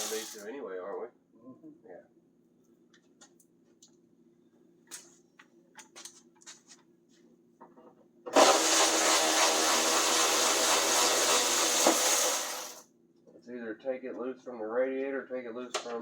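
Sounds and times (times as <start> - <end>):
power tool motor running: 0.0 - 0.4, 8.3 - 12.8.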